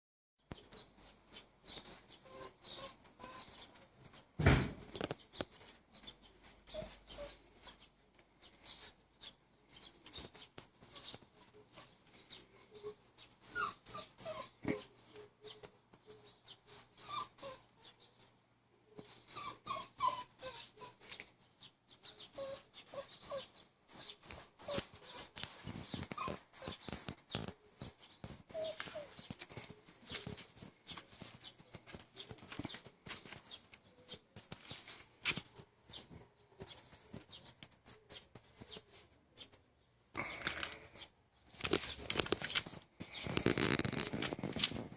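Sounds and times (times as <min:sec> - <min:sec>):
dog whining and yelping: 0:01.8 - 0:03.6, 0:06.4 - 0:07.7, 0:10.8 - 0:18.0, 0:18.9 - 0:21.3, 0:22.2 - 0:30.4.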